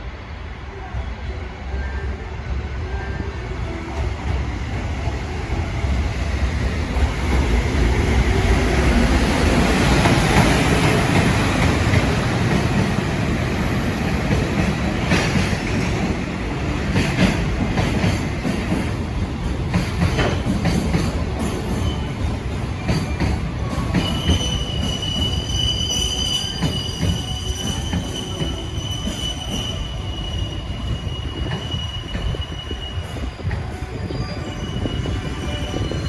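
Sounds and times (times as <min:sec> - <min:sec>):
freight train rumbling: 0:00.0 - 0:36.0.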